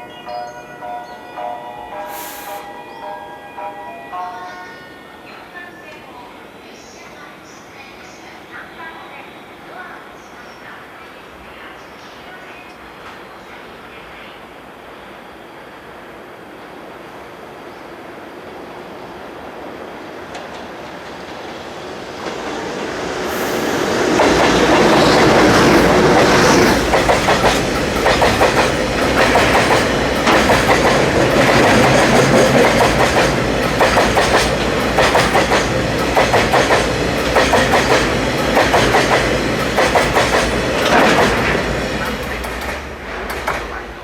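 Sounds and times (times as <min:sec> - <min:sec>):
freight train passing: 0:00.0 - 0:44.0
wheels clicking over rail joints: 0:24.2 - 0:43.9.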